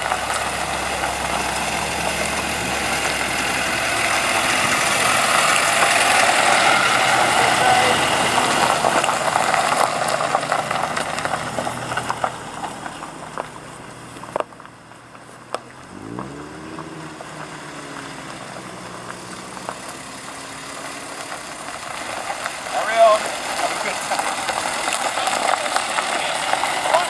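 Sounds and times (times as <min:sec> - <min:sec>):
car driving past: 0:00.0 - 0:27.0.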